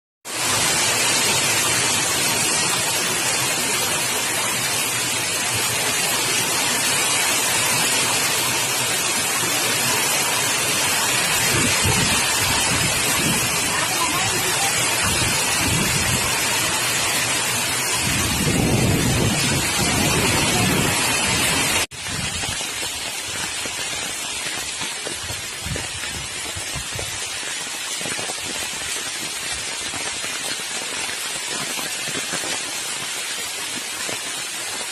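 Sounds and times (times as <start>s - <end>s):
heavy rain falling: 0.2s - 34.9s.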